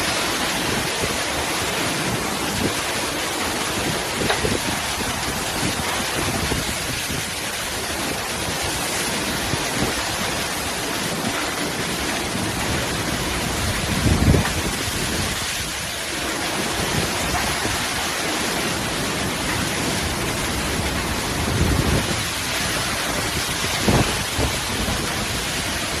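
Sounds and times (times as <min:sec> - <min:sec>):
heavy rain pouring: 0:00.0 - 0:26.0
strong wind rushing: 0:13.3 - 0:15.9, 0:20.5 - 0:26.0.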